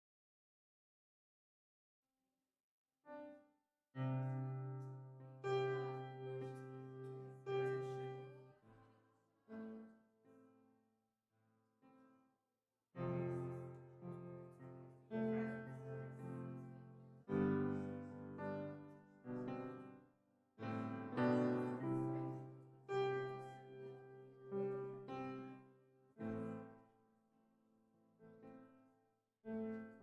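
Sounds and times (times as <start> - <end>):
slow piano chords: 4.1 - 8.5, 13.0 - 20.0, 20.6 - 25.6.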